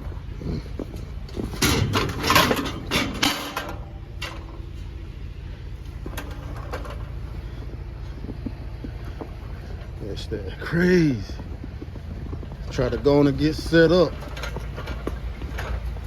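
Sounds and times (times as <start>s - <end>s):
steady low hum: 0.0s - 16.0s
clattering knocks and clinks: 0.8s - 4.9s, 6.0s - 7.6s, 12.2s - 16.0s.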